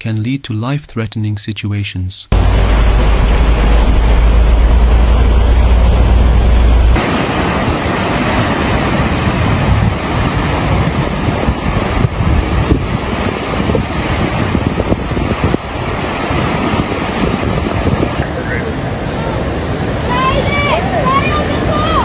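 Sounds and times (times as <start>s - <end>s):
heavy low rumble: 2.3s - 8.4s
wind buffeting microphone: 2.3s - 18.2s
rushing floodwater: 2.3s - 22.0s.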